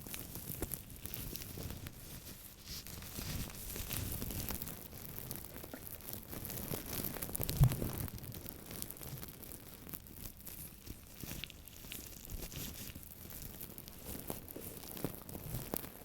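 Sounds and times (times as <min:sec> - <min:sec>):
object scratching and handling: 0:00.6 - 0:04.6, 0:10.8 - 0:15.9.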